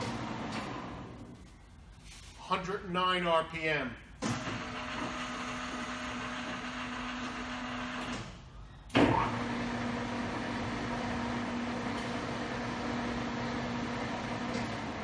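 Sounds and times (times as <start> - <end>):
lathe machine hum: 4.4 - 8.2.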